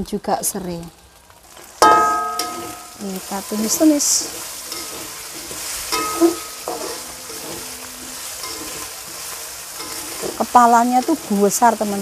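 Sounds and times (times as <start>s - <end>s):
spice paste sizzling in oil: 0.0s - 12.0s.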